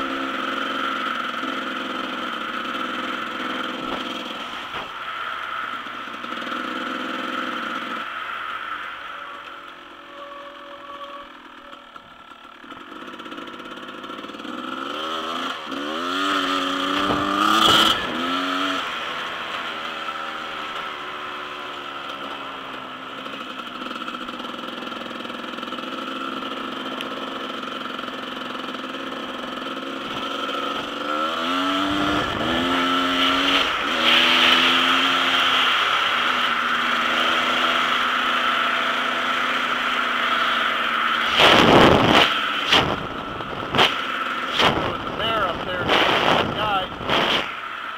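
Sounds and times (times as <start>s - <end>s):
dirt bike engine accelerating: 0.0s - 47.9s.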